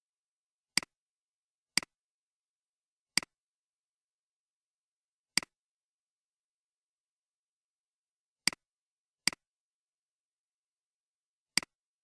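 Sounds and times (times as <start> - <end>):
computer mouse clicks: 3.2 - 3.4, 5.4 - 5.6, 11.5 - 11.8.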